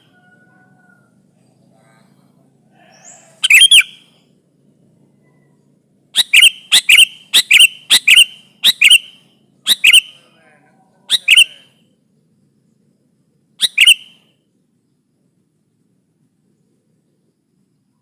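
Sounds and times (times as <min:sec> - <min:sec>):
bulbul paired chirps: 0:02.9 - 0:04.3, 0:05.1 - 0:10.4, 0:11.0 - 0:13.0, 0:13.6 - 0:15.1.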